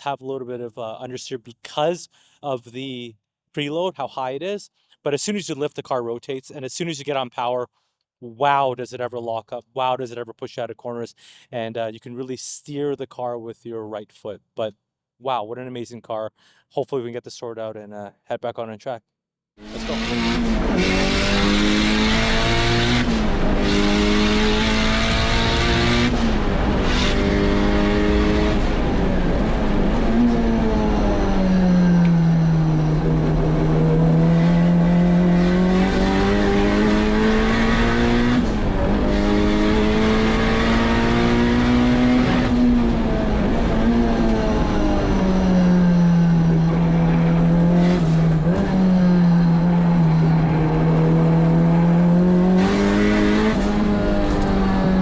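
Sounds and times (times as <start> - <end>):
race car engine accelerating: 19.6 - 55.0.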